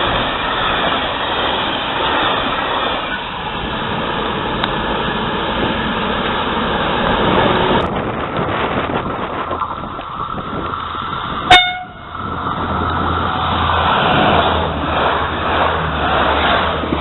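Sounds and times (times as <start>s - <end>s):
train passing: 0.0s - 17.0s
train horn toot: 11.5s - 12.2s.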